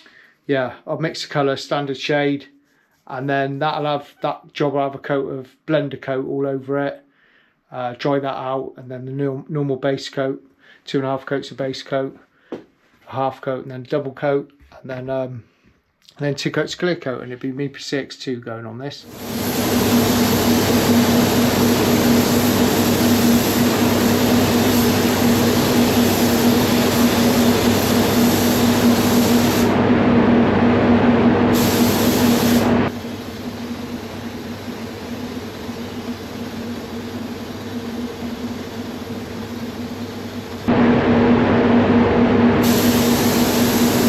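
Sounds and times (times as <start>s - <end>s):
compressed air hissing: 19.1s - 29.9s, 31.4s - 40.8s, 42.6s - 44.0s
spray booth fans humming: 19.1s - 44.0s.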